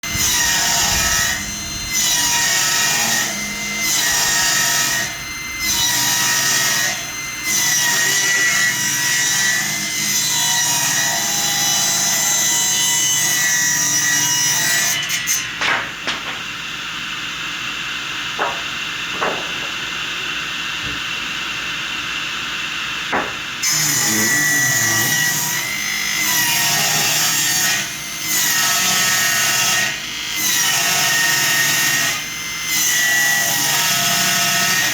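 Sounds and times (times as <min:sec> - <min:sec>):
power saw cutting wood: 0:00.0 - 0:16.7, 0:17.4 - 0:34.9
knocks: 0:15.6 - 0:16.5, 0:18.4 - 0:19.9, 0:23.1 - 0:23.4.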